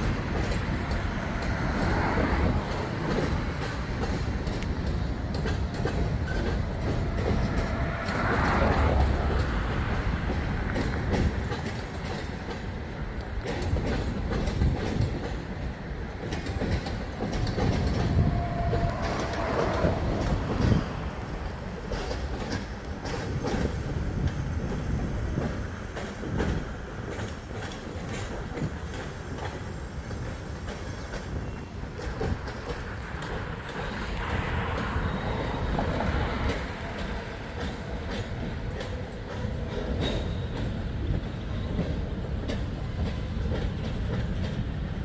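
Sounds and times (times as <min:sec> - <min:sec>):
wheel clacks over rail joints: 0:00.0 - 0:35.0
freight train cars rumbling: 0:00.0 - 0:45.0.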